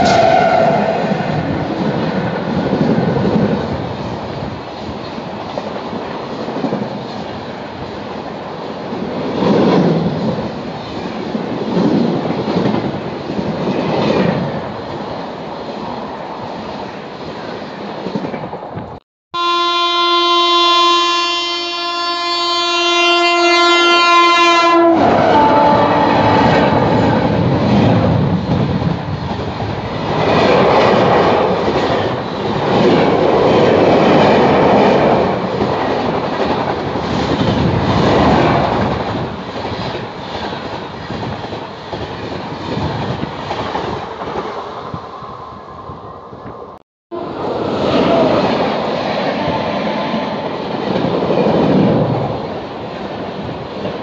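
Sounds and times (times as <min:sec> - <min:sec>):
locomotive horn blast: 0:00.0 - 0:01.6, 0:19.4 - 0:27.3
express train passing: 0:00.0 - 0:54.0.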